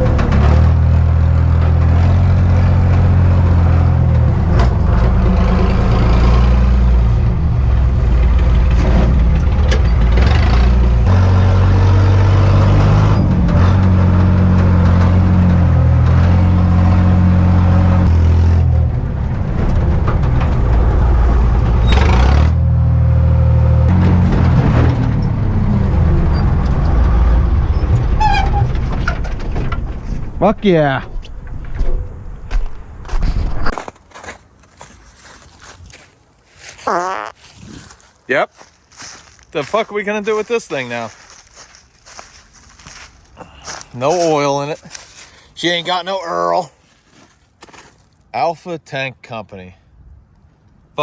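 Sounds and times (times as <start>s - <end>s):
diesel truck engine revving: 0.0s - 29.0s.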